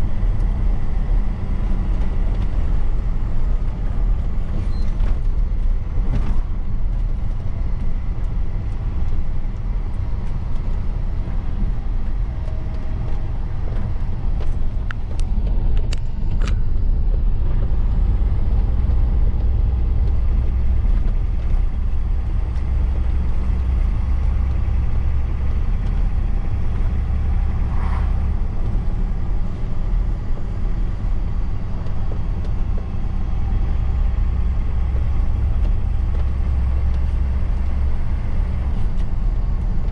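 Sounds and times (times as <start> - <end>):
truck engine rumble: 0.0 - 39.9.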